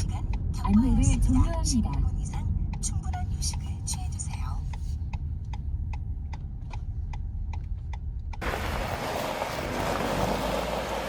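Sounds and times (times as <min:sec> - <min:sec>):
turn signal ticking: 0:00.0 - 0:08.6
car engine rumble: 0:00.0 - 0:11.0.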